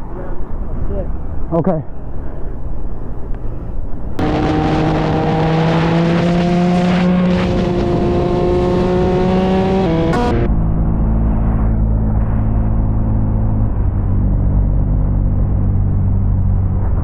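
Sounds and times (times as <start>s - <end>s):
low wind-like rumble: 10.5s - 17.0s.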